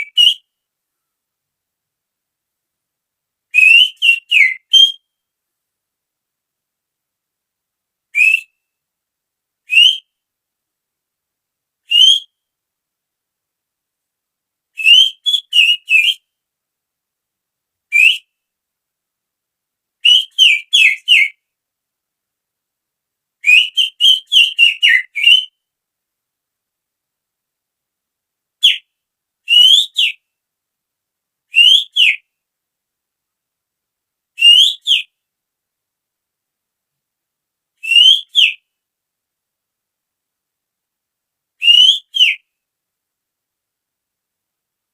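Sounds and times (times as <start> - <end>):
finger whistling bird call: 0.0 - 0.5, 3.6 - 5.1, 8.2 - 8.6, 9.7 - 10.1, 11.9 - 12.4, 14.8 - 16.2, 17.9 - 18.3, 20.0 - 21.4, 23.4 - 25.6, 28.6 - 28.8, 29.5 - 30.2, 31.5 - 32.2, 34.4 - 35.1, 37.8 - 38.6, 41.6 - 42.4.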